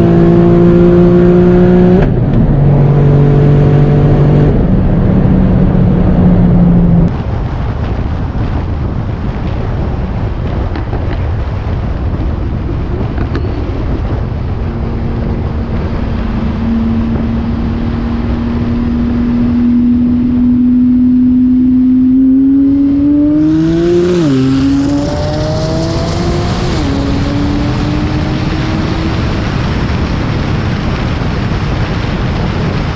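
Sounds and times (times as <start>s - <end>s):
car engine accelerating: 0.0s - 7.1s, 12.5s - 32.0s
wind and road noise: 0.0s - 32.9s.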